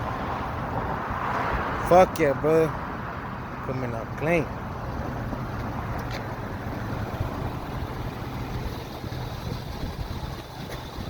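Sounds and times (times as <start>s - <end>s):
pickup truck engine running: 2.9s - 11.0s.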